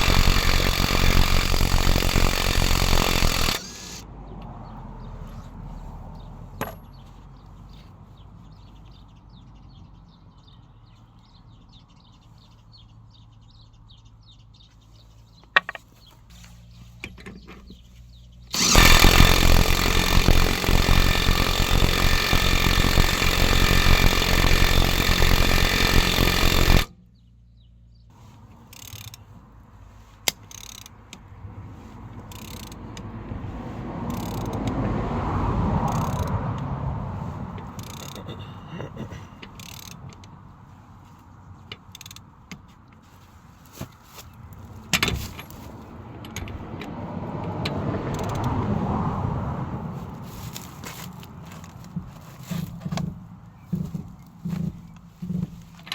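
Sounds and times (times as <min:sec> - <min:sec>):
power tool running: 0:00.0 - 0:04.0, 0:18.5 - 0:26.9
tool clicks: 0:00.0 - 0:04.0, 0:18.6 - 0:26.9, 0:30.3 - 0:31.2, 0:37.6 - 0:38.2.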